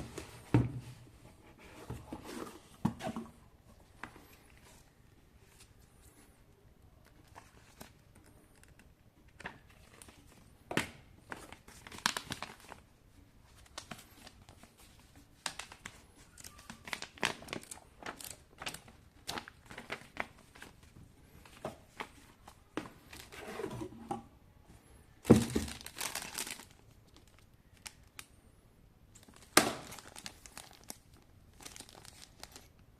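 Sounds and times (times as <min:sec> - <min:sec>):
packaging crinkling and tearing: 0:11.3 - 0:12.8, 0:15.4 - 0:20.7, 0:25.3 - 0:28.3, 0:29.2 - 0:32.8.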